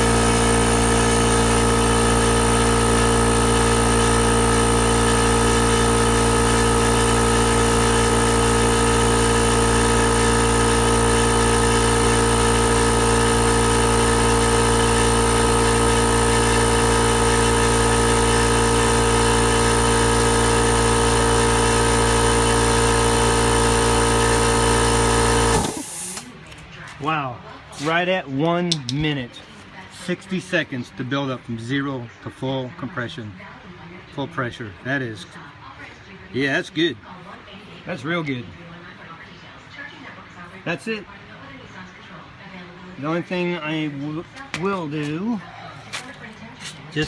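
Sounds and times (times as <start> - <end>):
air compressor running loudly: 0.0 - 26.4, 43.0 - 47.0.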